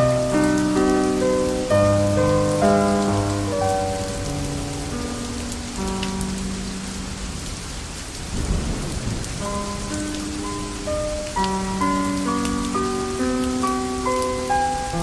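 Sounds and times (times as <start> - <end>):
steady rain: 0.0 - 15.0
low roll of thunder: 8.2 - 10.4.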